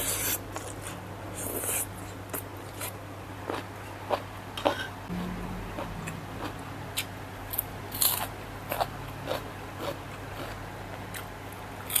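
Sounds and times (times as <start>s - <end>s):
low steady hum: 0.0s - 12.0s
crunchy bites and chewing: 6.4s - 10.6s.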